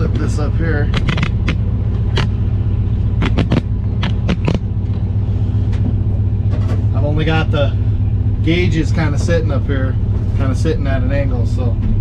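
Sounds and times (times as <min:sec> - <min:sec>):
truck engine idling: 0:00.0 - 0:12.0
sharp clicks and clacks: 0:00.9 - 0:02.3, 0:03.2 - 0:04.6.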